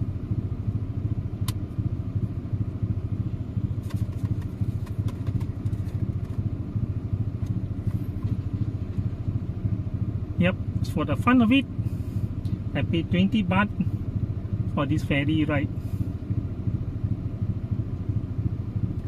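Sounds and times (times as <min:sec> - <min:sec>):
engine idling: 0:00.0 - 0:19.0
light clicks and clatters: 0:03.8 - 0:06.5.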